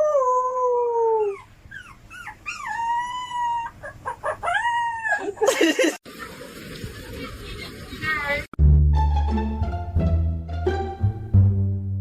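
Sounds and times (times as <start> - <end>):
dog yelping and howling: 0.0 - 5.5.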